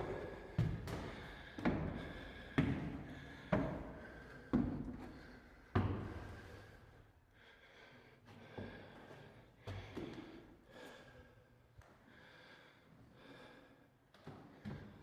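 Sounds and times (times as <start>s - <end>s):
footsteps with echo: 0.0s - 3.0s.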